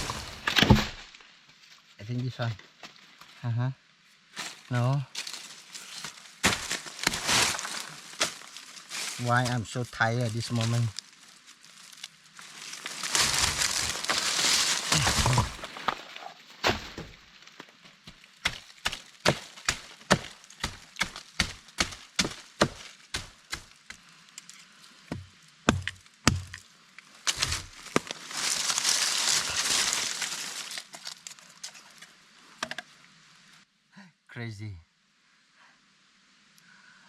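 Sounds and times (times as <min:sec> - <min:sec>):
rustling: 0:04.2 - 0:32.2
chopping blows on wood: 0:18.4 - 0:23.7, 0:25.1 - 0:26.6.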